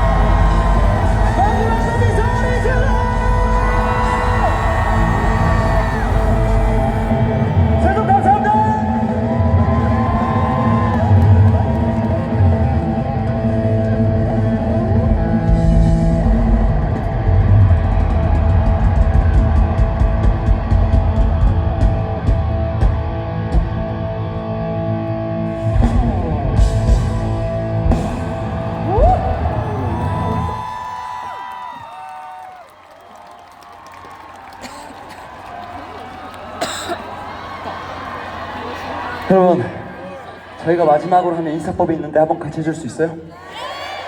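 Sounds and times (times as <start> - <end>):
electric guitar chords: 0.0 - 30.6
bass guitar: 0.0 - 30.7
drum kit: 11.6 - 24.0, 25.6 - 30.7.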